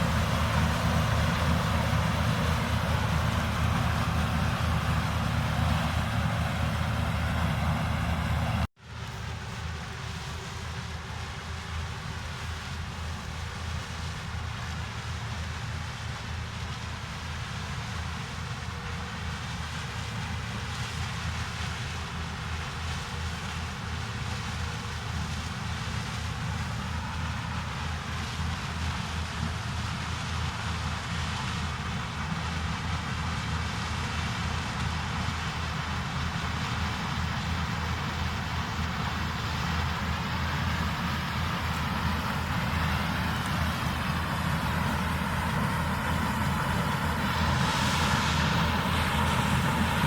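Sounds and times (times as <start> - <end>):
rushing mechanical noise: 0.0 - 11.1, 24.6 - 50.0
engine drone: 0.0 - 50.0.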